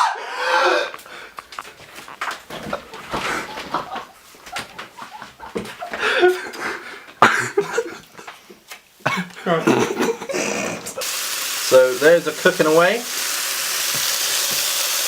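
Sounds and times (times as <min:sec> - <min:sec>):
people chuckling: 0:02.5 - 0:11.0.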